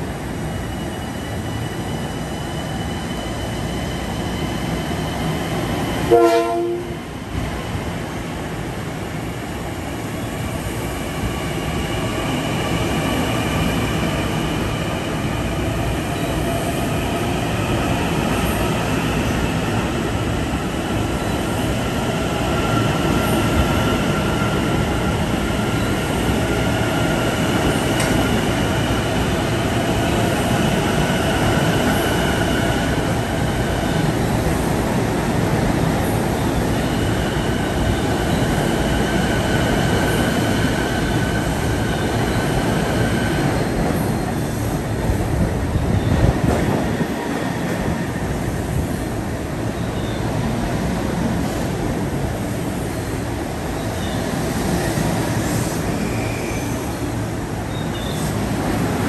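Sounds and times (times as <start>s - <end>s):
train wheel and rail rumble: 0.0s - 59.0s
train horn blast: 6.1s - 7.0s.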